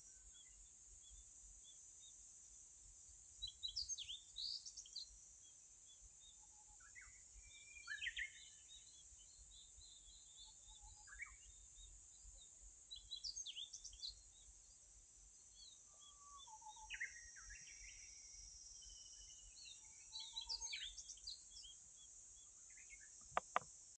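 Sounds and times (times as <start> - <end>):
steady high-pitched hiss: 0.0 - 23.9
small birds chirping: 3.3 - 23.7.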